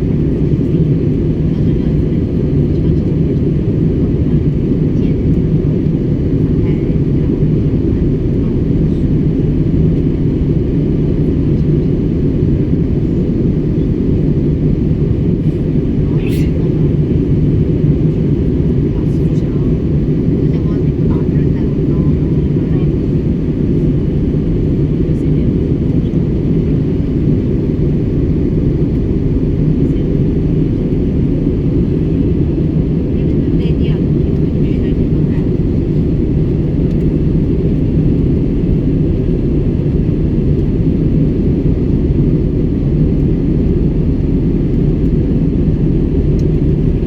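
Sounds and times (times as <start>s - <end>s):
airliner cabin roar: 0.0s - 47.0s.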